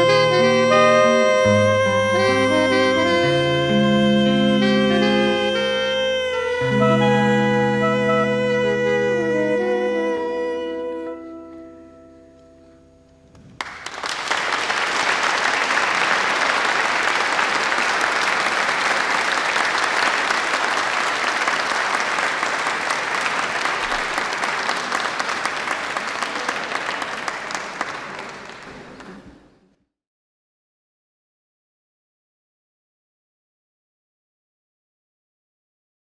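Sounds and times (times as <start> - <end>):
soprano saxophone: 0.0 - 13.0
guitar notes: 0.0 - 13.4
audience applause: 13.6 - 29.6.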